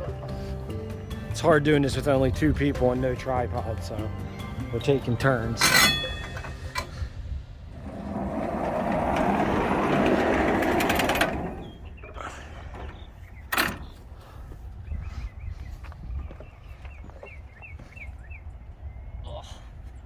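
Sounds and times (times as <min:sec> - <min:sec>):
rushing mechanical noise: 0:07.6 - 0:12.1
sawmill engine idling: 0:07.8 - 0:12.0.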